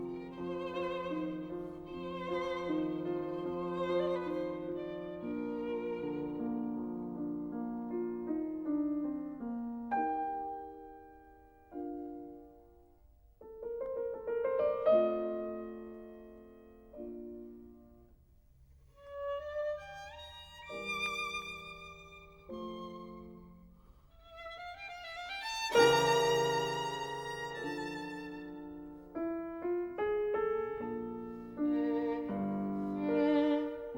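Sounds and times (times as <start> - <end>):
slow violin instrumental: 0.0 - 7.4, 19.0 - 29.4, 30.4 - 33.9.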